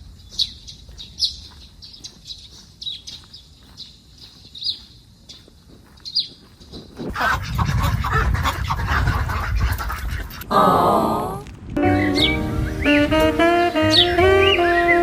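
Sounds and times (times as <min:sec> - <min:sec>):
small birds chirping: 0:00.0 - 0:08.8, 0:11.8 - 0:15.0
ducks quacking loudly: 0:07.1 - 0:10.4, 0:11.8 - 0:15.0.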